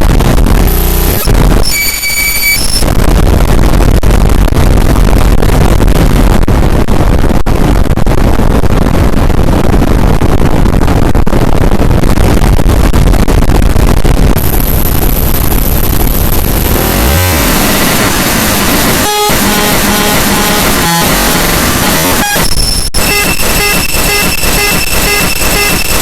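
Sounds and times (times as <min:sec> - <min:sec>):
distorted noise music: 0:00.0 - 0:26.0.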